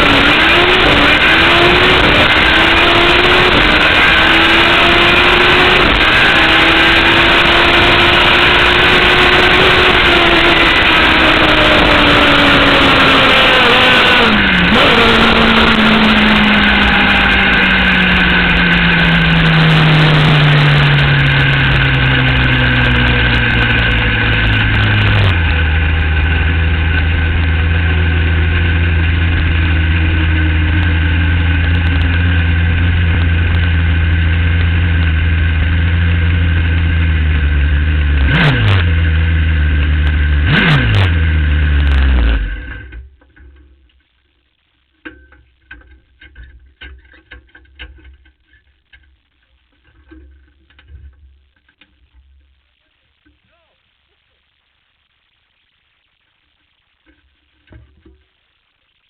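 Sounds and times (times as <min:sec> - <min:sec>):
rushing noise: 0:00.0 - 0:34.1
motorcycle engine revving: 0:00.0 - 0:43.2.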